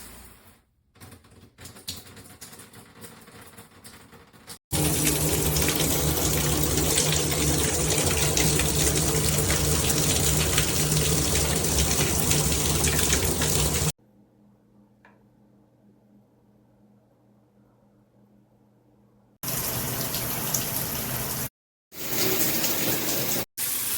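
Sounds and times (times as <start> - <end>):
shower head spraying water: 4.7 - 14.0.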